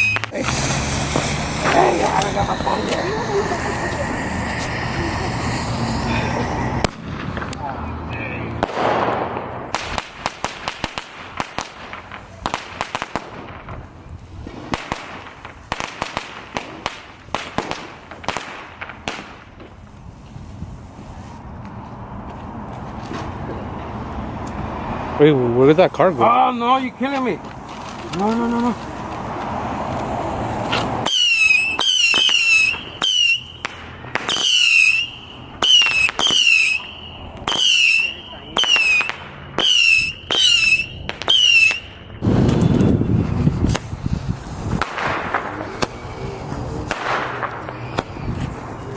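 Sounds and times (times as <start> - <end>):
fireworks cracking and popping: 0.0 - 20.2, 25.7 - 48.9.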